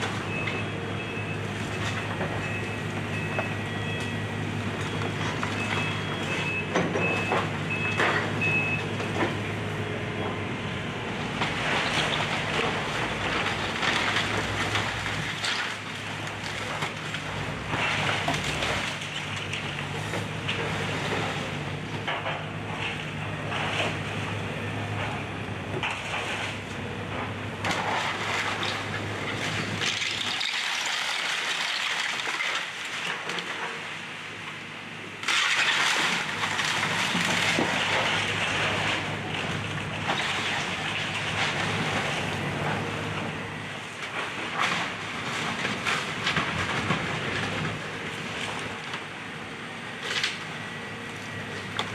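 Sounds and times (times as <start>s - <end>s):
excavator diesel engine humming: 0.0s - 30.3s, 36.3s - 51.9s
wood and debris cracking: 11.3s - 24.2s, 25.0s - 34.0s, 35.2s - 49.1s, 50.0s - 50.6s, 51.2s - 51.9s.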